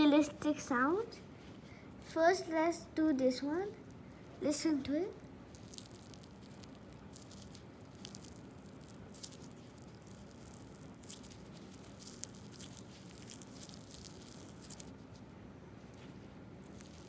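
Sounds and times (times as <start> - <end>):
slime squeezed by hand: 5.2 - 15.2, 15.9 - 17.0.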